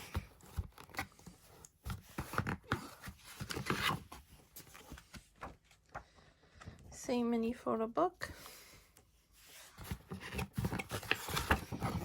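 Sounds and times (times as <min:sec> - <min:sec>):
paper and card rustling: 0:00.0 - 0:06.2, 0:09.4 - 0:12.0.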